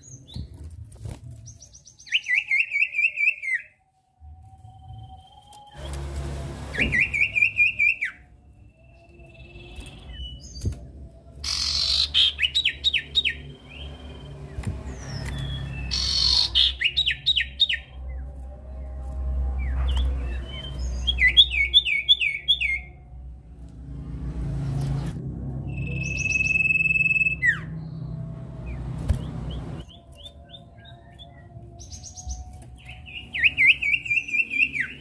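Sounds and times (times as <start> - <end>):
bird singing whistled notes: 1.4 - 3.8, 6.8 - 10.8, 11.4 - 18.2, 19.6 - 23.0, 25.6 - 35.0
steady low hum: 22.9 - 29.9.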